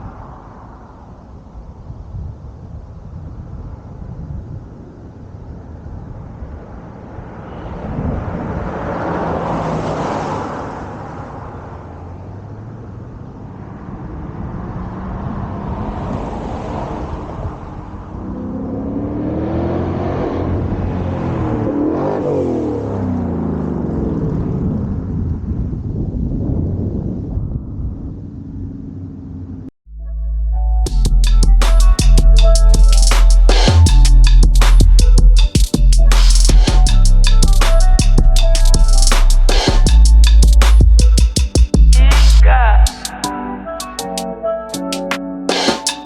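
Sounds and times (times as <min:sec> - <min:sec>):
car engine revving: 0:07.1 - 0:24.7.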